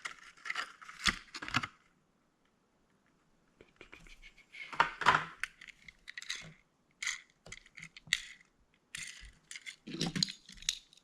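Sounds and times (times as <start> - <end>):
toy car clicks and rattles: 5.6 - 11.0.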